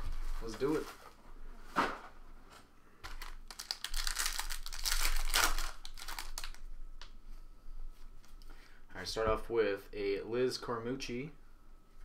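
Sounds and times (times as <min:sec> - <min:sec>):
wrappers crinkling and tearing: 0:03.0 - 0:06.7.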